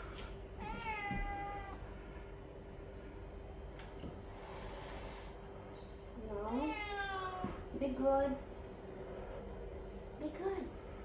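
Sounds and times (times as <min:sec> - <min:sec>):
cat meowing: 0:00.6 - 0:01.8, 0:06.5 - 0:07.6.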